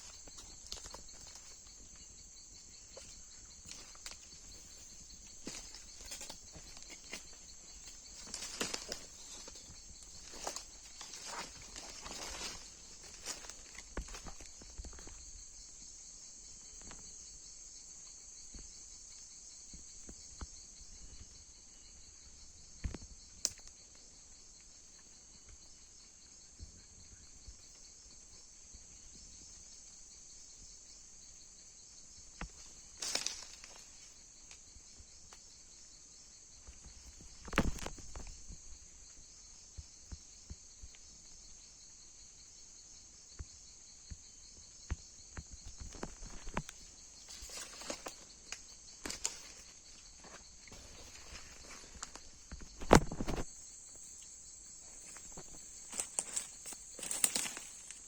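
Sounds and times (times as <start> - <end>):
high-pitched insect chorus: 0.0 - 58.0
brief knocks or rustles: 52.0 - 53.5.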